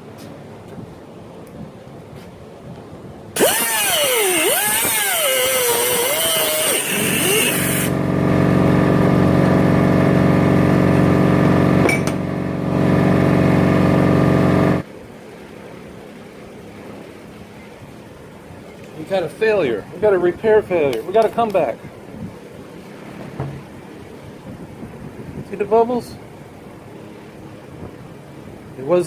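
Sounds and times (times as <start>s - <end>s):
power tool running: 3.4s - 14.8s.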